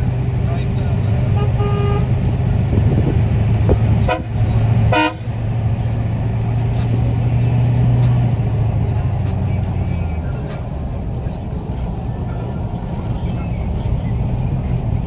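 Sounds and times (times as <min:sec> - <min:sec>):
vehicle engines rumbling: 0:00.0 - 0:15.0
car horn toots: 0:01.0 - 0:02.5, 0:03.7 - 0:05.5.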